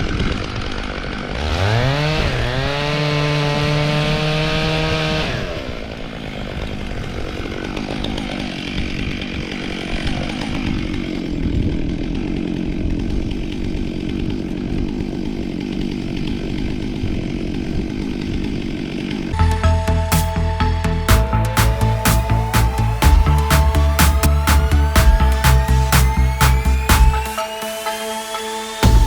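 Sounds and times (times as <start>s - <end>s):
chainsaw cutting log: 0.4s - 11.4s.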